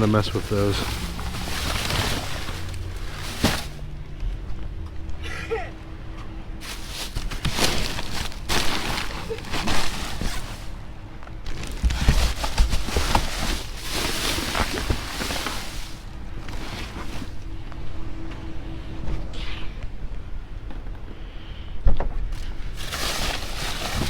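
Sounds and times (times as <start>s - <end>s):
plastic bags rustling: 0.0s - 4.0s, 6.5s - 17.7s, 22.4s - 24.0s.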